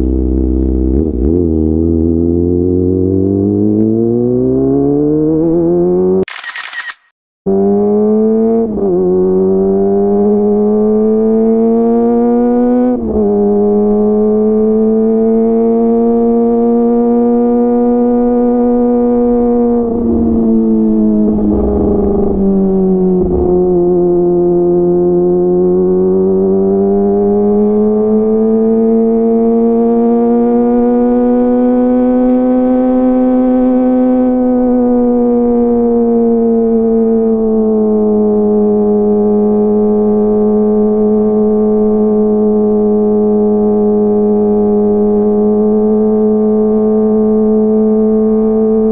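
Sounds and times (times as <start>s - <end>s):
motorcycle engine high-pitched: 0.0s - 15.1s.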